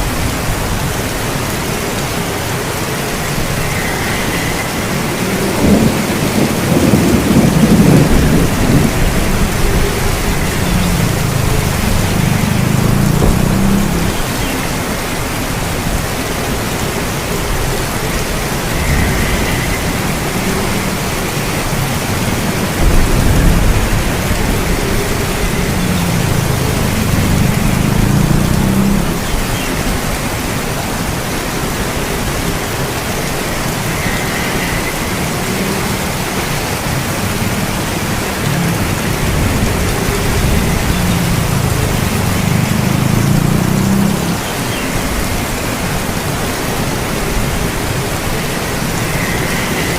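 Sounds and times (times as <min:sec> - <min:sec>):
heavy rain hiss: 0:00.0 - 0:49.9
low thunder rumbling: 0:03.1 - 0:14.8, 0:15.5 - 0:30.4, 0:36.0 - 0:44.4.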